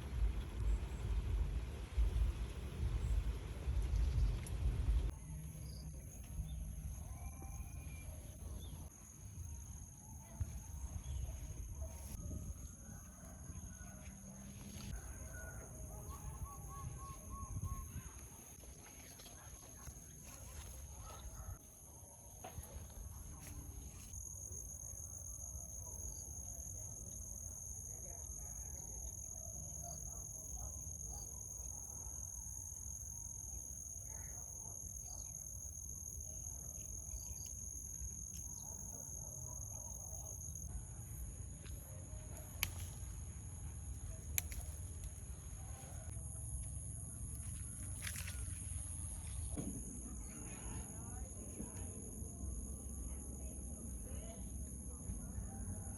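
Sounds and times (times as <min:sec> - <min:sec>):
low rumble: 0:00.0 - 0:07.8.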